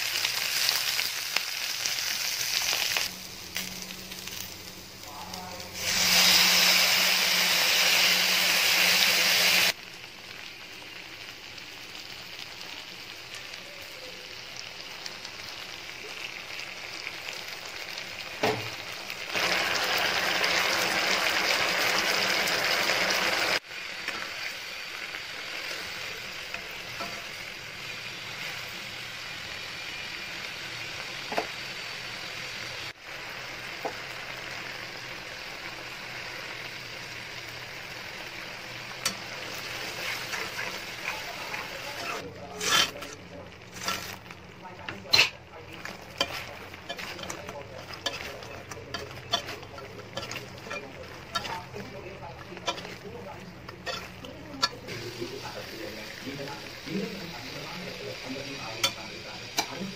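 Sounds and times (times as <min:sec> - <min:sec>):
vegetables sizzling in oil: 0:00.0 - 0:59.9.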